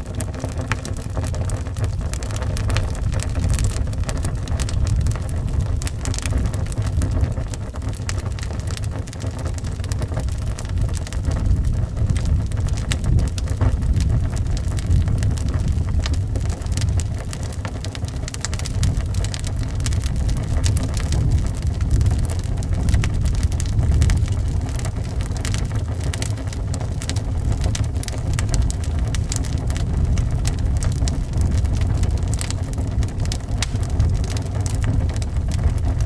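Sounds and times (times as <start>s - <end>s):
low wind rumble: 0.0s - 36.0s
wood fire crackling and popping: 0.0s - 36.0s.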